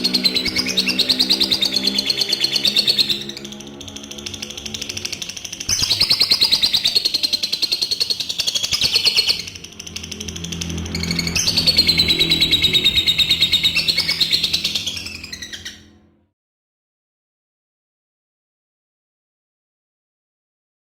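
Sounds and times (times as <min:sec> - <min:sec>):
lovebird rattling chatter: 0:00.0 - 0:15.8.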